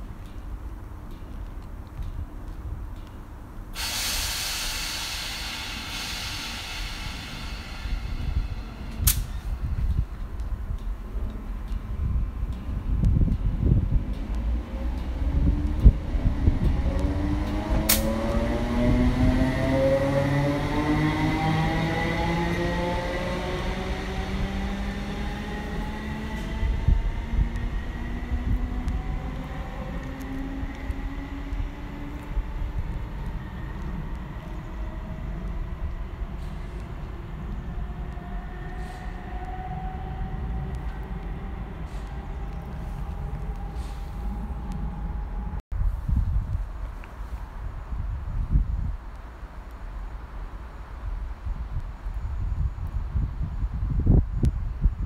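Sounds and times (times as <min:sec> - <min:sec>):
train rumbling moving off: 0:02.9 - 0:48.9
loud air hiss: 0:03.8 - 0:09.8.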